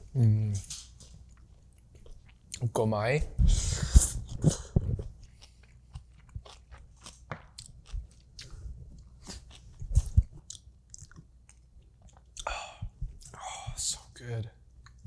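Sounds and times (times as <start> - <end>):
wet chewing clicks: 4.3 - 12.6.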